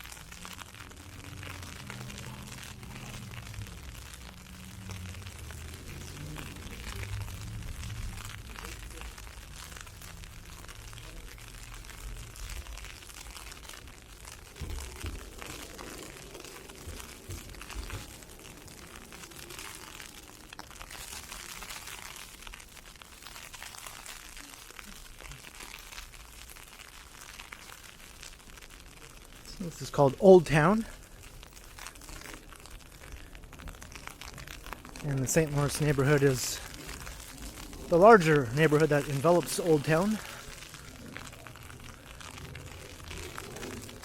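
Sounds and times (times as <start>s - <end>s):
low rumble: 0.2s - 23.1s, 36.6s - 39.1s.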